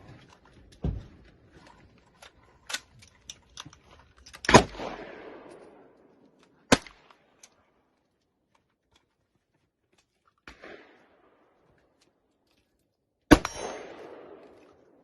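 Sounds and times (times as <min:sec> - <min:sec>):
quiet shots or clicks: 0:02.1 - 0:08.0
gunshots echoing: 0:04.5 - 0:06.1, 0:10.5 - 0:11.4, 0:13.3 - 0:15.0.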